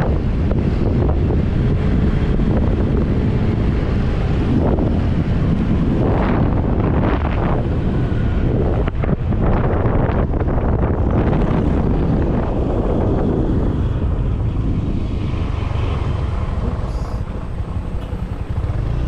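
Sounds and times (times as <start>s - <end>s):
wind blasting across microphone: 0.0s - 19.0s.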